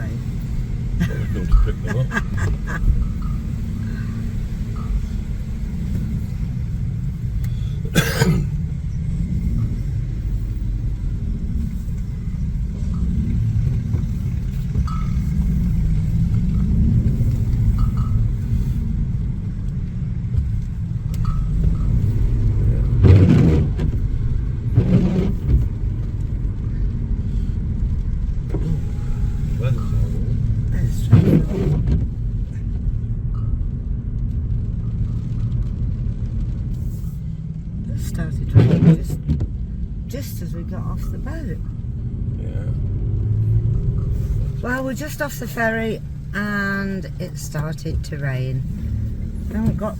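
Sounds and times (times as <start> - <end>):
car cabin road rumble: 0.0 - 49.9.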